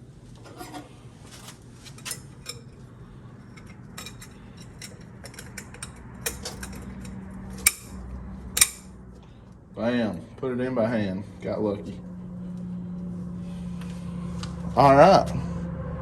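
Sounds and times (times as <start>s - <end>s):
metal parts clicking and clinking: 0.5s - 8.0s, 8.6s - 8.9s
loud metal clink: 4.0s - 8.0s, 8.6s - 8.9s.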